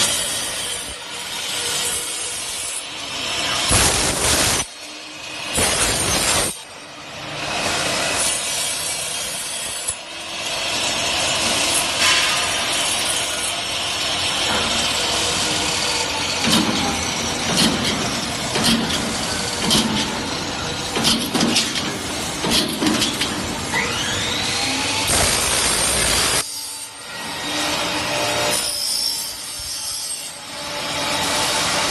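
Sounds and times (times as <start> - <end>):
machine cutting metal tube: 0.0 - 31.9
machine knocking: 20.9 - 23.4.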